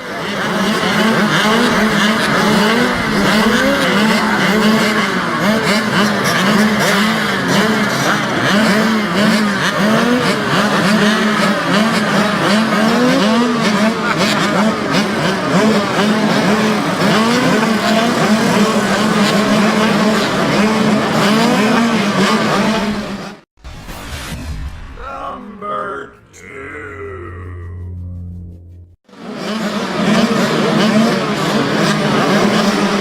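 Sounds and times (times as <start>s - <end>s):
mini motorcycle engines revving: 0.0s - 23.5s, 29.1s - 33.0s.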